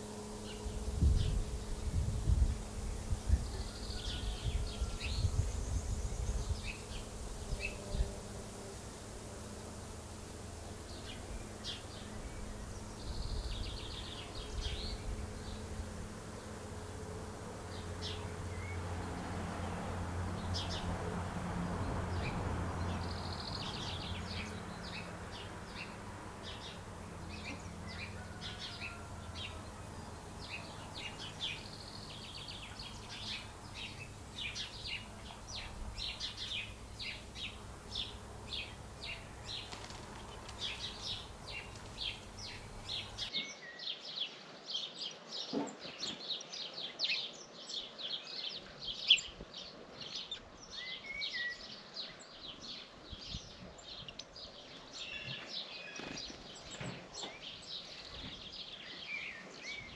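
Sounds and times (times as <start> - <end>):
steady low hum: 0.0 - 43.3
small birds chirping: 21.9 - 43.3.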